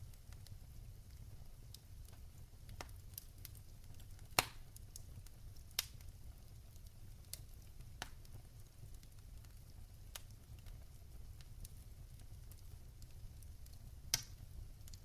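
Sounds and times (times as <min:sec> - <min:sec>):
wood fire crackling: 0:00.0 - 0:15.0
loud sharp fire pops: 0:04.4 - 0:04.6.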